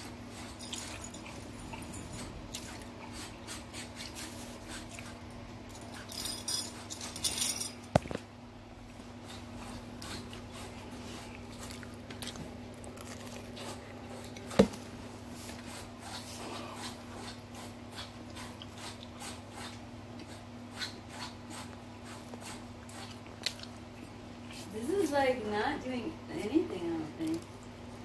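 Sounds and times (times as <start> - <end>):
steady low hum: 0.0 - 28.0
person chewing pizza: 8.9 - 14.6, 15.5 - 24.6.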